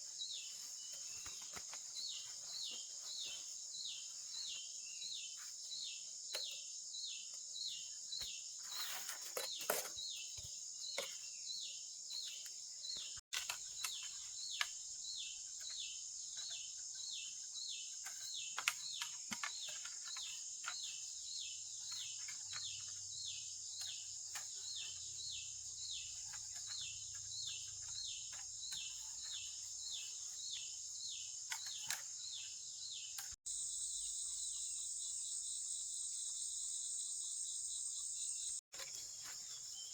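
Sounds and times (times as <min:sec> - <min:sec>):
insects droning: 0:00.1 - 0:39.9.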